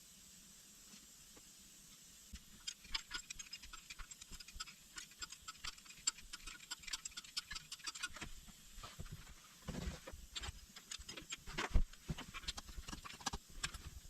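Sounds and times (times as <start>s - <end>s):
ratchet wrench clicking: 2.6s - 8.2s.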